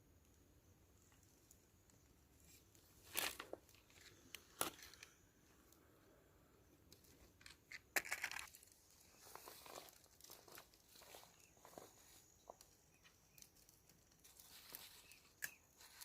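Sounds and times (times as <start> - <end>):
rustling and crackling: 6.9 - 16.0.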